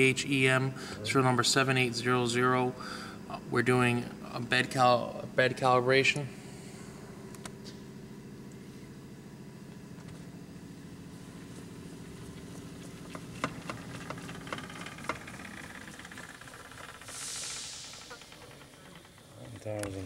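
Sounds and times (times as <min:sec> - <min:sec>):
lathe humming: 0:10.5 - 0:20.0
short hiss: 0:17.0 - 0:18.7.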